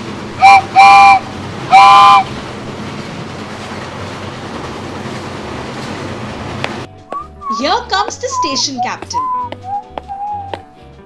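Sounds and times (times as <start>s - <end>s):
cartoon train horn toots: 0.4s - 2.4s.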